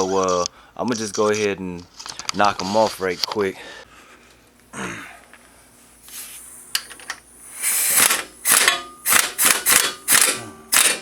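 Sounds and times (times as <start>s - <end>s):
impact wrench buzzing: 6.1s - 11.0s.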